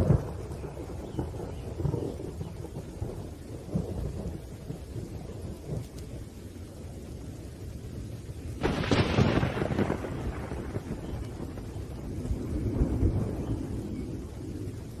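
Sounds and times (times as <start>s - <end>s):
rolling thunder: 0.0s - 15.0s
steady rain: 0.0s - 15.0s
loud thunder crash: 8.6s - 13.9s.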